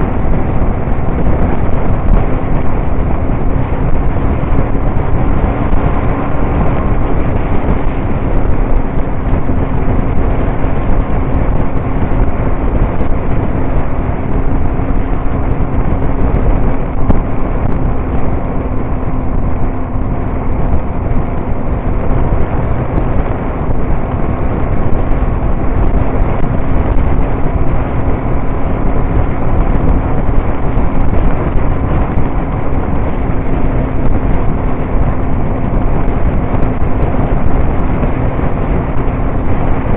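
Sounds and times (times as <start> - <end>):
motorcycle engine hum: 0.0 - 39.9
road and wind noise: 0.0 - 39.9.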